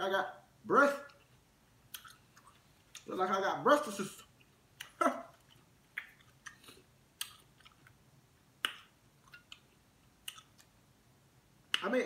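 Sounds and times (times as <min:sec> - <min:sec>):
person chewing with mouth smacks: 0:01.1 - 0:03.1, 0:04.2 - 0:08.0, 0:08.6 - 0:10.8.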